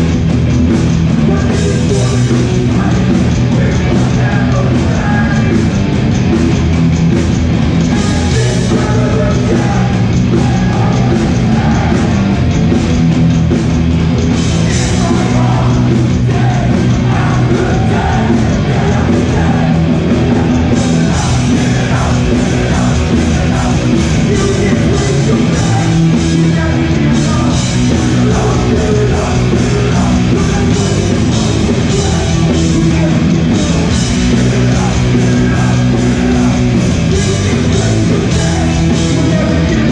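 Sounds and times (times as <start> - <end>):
hardcore punk band playing: 0.0 - 39.9
shouted vocals: 14.7 - 39.9.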